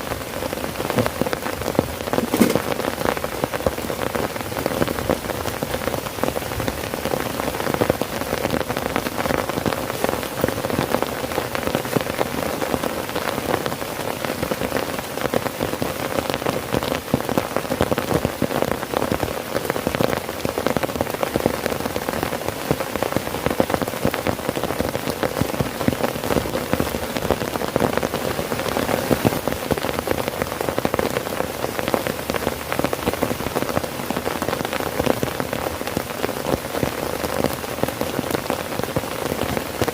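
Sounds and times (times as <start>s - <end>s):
heavy rain drumming on a tent: 0.0s - 39.9s.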